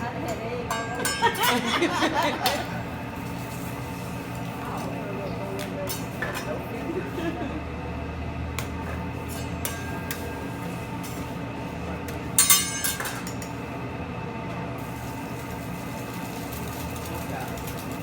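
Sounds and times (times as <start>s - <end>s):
steady background hum: 0.0s - 18.0s
metal utensils clattering: 0.3s - 2.8s, 12.4s - 13.6s.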